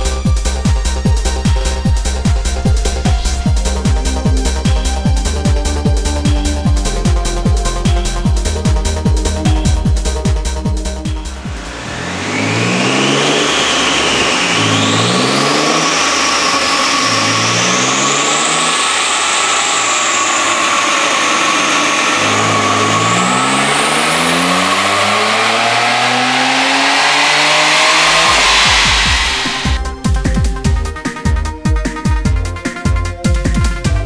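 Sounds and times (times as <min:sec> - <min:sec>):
car engine revving at full throttle: 0:10.9 - 0:29.8.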